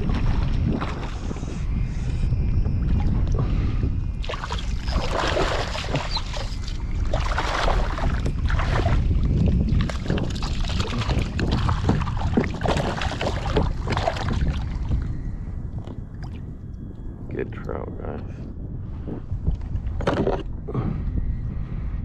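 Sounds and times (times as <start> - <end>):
water splashing around kayak: 0.0 - 1.6, 4.2 - 15.0
wind buffeting microphone: 0.0 - 22.0.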